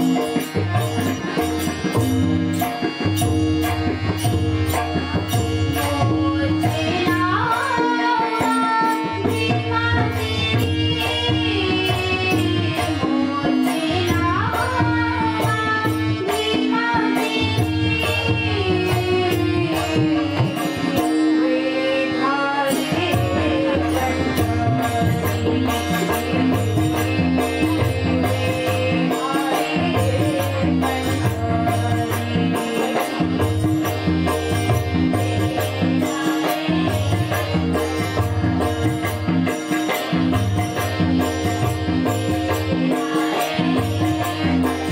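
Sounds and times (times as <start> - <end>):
held drone: 0.0 - 44.9
sharp percussion strokes: 22.7 - 44.9.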